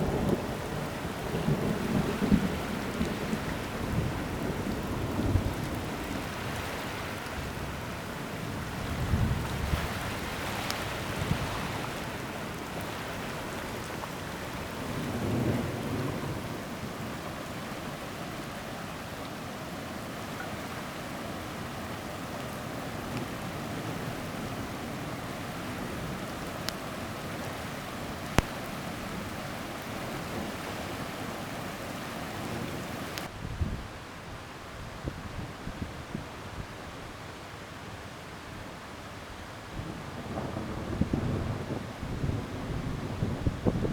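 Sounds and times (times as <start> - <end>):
low rumble of thunder: 0.0 - 6.3, 8.8 - 10.0, 14.8 - 17.3, 39.8 - 43.9
heavy rain pouring: 0.0 - 34.4, 39.7 - 43.9.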